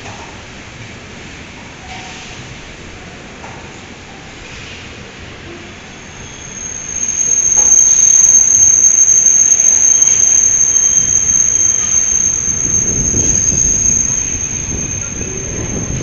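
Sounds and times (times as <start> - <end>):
train wheels squealing: 4.5 - 16.0
low rumble: 6.1 - 16.0.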